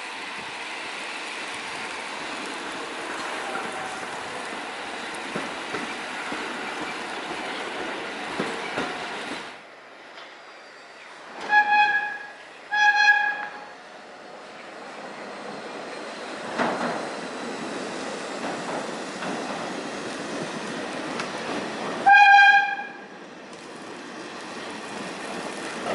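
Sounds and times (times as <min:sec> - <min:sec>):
subway train rumbling: 0:00.0 - 0:25.9
train horn blasts: 0:03.4 - 0:04.2, 0:11.4 - 0:13.8, 0:22.0 - 0:23.1.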